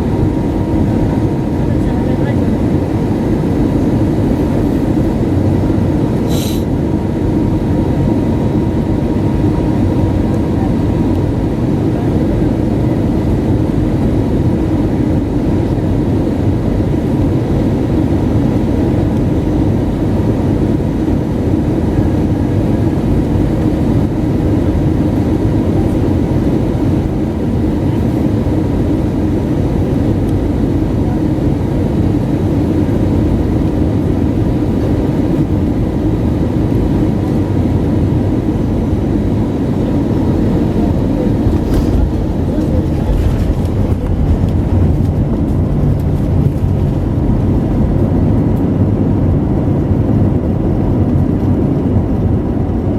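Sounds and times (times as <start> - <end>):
airliner cabin engine and airflow noise: 0.0 - 52.9.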